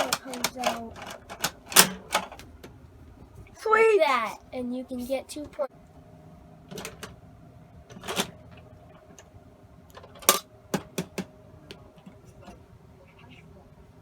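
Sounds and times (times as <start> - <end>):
plastic toy clicks and knocks: 0.0 - 2.4.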